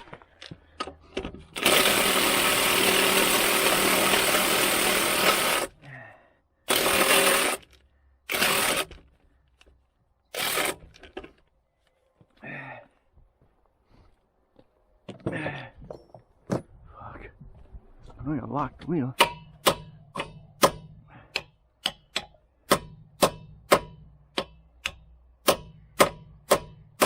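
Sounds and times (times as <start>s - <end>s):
handheld power tool running: 1.5s - 5.8s, 6.7s - 9.0s, 10.3s - 10.9s.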